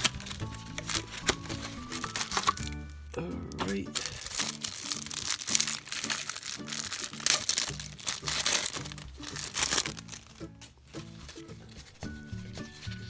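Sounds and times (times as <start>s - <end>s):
plastic wrapper crinkling: 0.0s - 3.0s, 3.6s - 13.0s
background music with steady beat: 0.0s - 4.9s, 7.7s - 13.0s.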